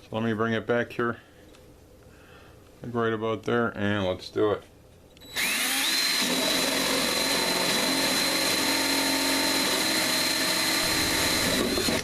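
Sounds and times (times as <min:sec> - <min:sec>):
power drill cutting steel: 0:05.2 - 0:12.0.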